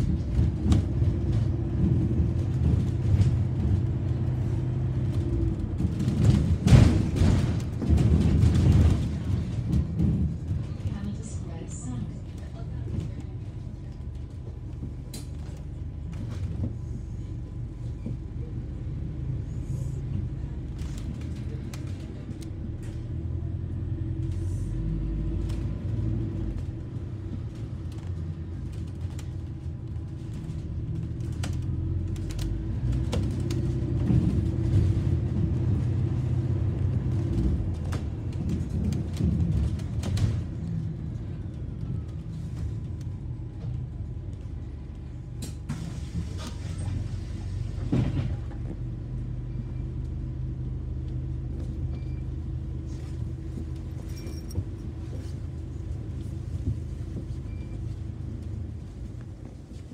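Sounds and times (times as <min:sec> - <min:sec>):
rattles and clicks: 0:00.0 - 0:11.4, 0:28.7 - 0:40.7
bus engine and road rumble: 0:00.0 - 0:59.9.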